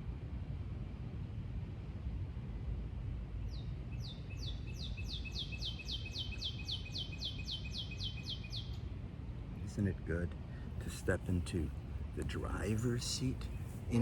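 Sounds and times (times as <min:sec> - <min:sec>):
songbird trilling: 0:04.0 - 0:08.8.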